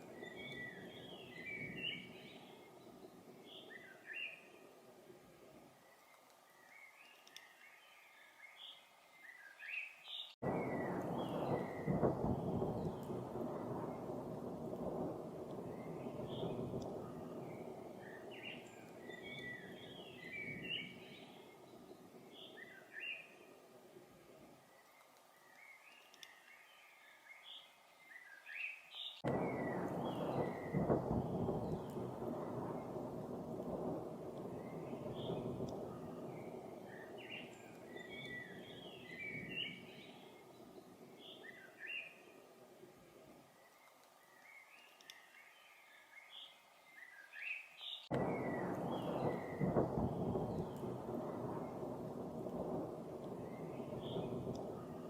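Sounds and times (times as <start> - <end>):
distant thunder rumbling: 0.0 - 4.2, 10.4 - 23.0, 29.2 - 42.8, 48.1 - 55.0
songbird chirping: 0.0 - 55.0
songbird chirping and whistling: 0.1 - 4.6, 15.7 - 23.4, 34.0 - 42.4.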